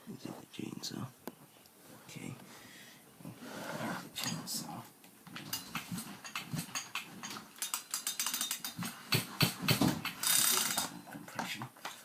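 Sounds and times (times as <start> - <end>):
chainsaw recoil starter pulled: 10.2 - 10.9.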